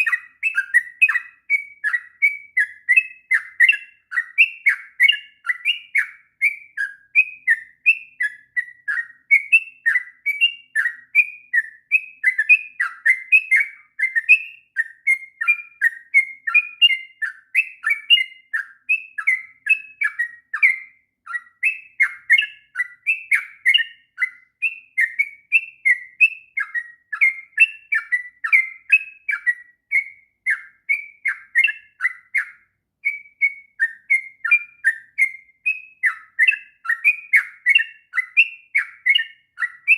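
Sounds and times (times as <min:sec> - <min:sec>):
bird singing chattering notes: 0:00.0 - 0:39.9.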